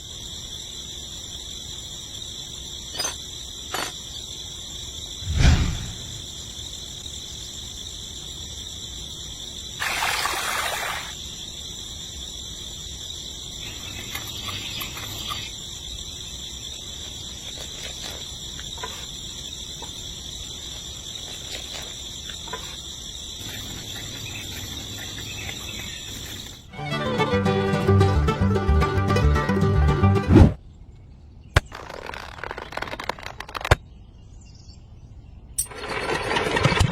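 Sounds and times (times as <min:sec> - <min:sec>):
brief rushing noise: 0:05.2 - 0:06.4.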